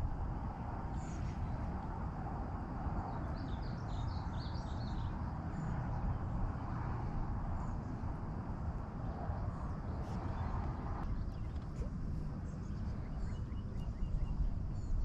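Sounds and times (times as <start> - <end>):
low outdoor rumble: 0.0 - 15.0
songbird chirping: 3.1 - 6.2, 9.9 - 15.0.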